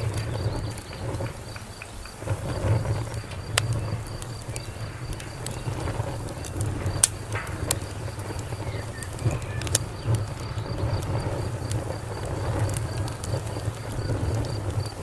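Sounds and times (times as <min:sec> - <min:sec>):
wood fire crackling: 0:00.0 - 0:15.0
faint high chirp pulsing: 0:00.3 - 0:11.5.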